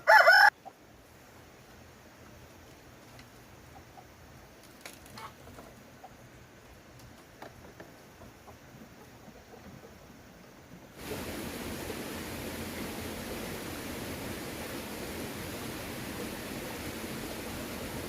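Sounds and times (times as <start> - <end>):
chickens clucking faintly: 0.0 - 11.2.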